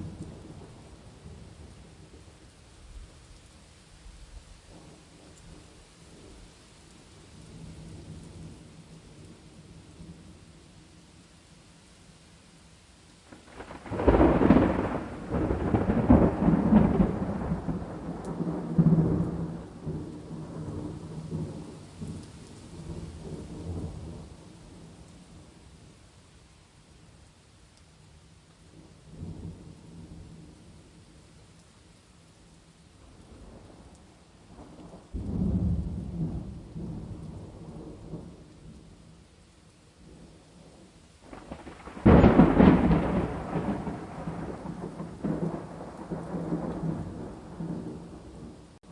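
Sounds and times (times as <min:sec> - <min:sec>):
steady rain: 0:00.0 - 0:48.9
thunder rumbling and cracking: 0:13.4 - 0:24.4, 0:34.5 - 0:38.9, 0:41.2 - 0:48.8.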